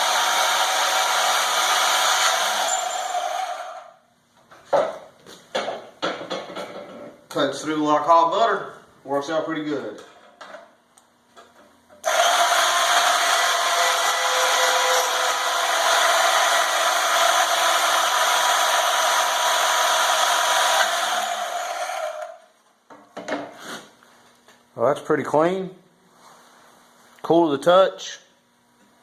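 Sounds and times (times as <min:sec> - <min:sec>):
band saw cutting steel: 0:00.0 - 0:03.9, 0:12.0 - 0:22.4.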